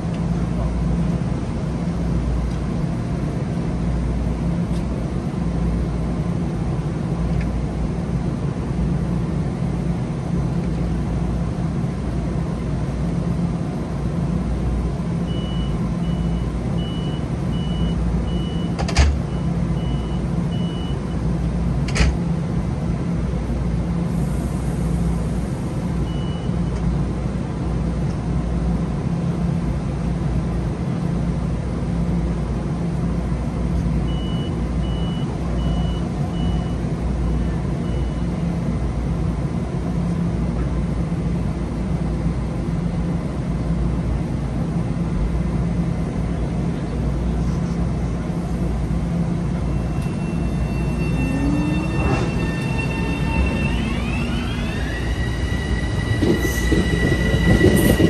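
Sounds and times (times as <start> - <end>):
train rumbling: 0.0 - 58.0
short high beeps: 49.6 - 58.0.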